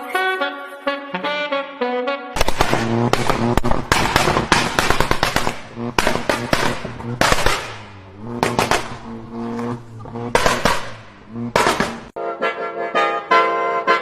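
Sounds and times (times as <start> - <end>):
music with brass: 0.0 - 9.2, 9.9 - 14.0
car exhaust popping and crackling: 2.4 - 12.2
pitched engine drone: 2.5 - 12.2.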